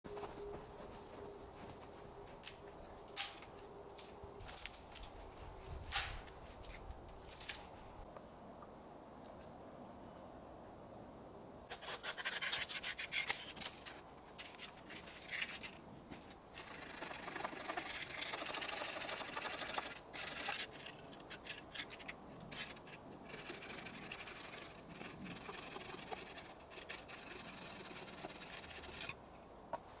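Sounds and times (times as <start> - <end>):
hand saw cutting wood: 16.6 - 20.8, 22.7 - 29.2.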